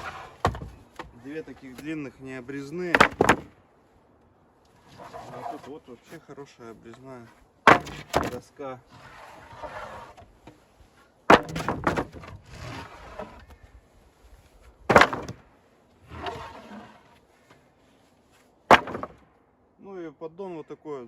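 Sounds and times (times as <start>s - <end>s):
wooden boards knocking: 0.0s - 1.9s, 2.9s - 3.6s, 7.7s - 8.4s, 11.3s - 12.4s, 14.9s - 15.4s, 18.7s - 19.2s
scraping and rustling: 0.0s - 3.6s, 4.7s - 19.2s.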